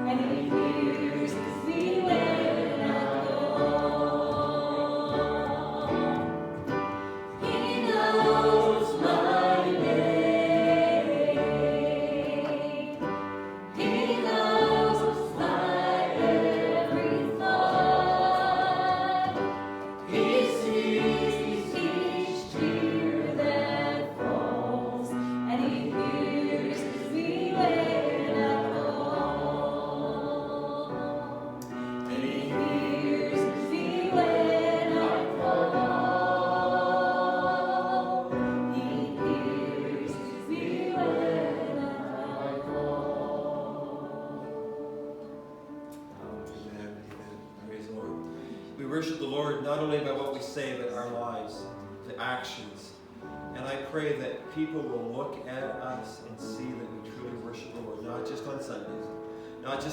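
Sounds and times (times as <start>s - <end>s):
congregation singing a hymn: 0.0s - 59.9s.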